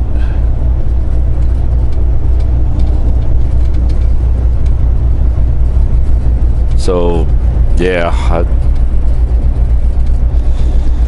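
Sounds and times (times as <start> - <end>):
truck engine drone from cab: 0.0 - 11.0.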